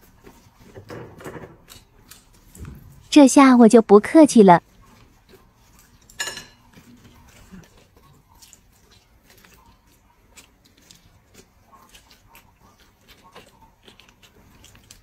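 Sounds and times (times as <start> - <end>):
chewing clicks and smacks: 1.6 - 2.7, 4.8 - 15.0.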